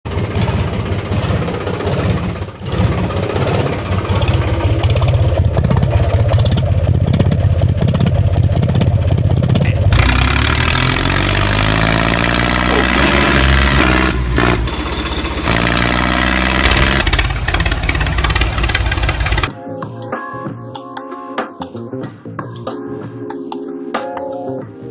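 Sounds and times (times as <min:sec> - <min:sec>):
engine revving: 0:00.1 - 0:19.5
music: 0:19.5 - 0:24.9.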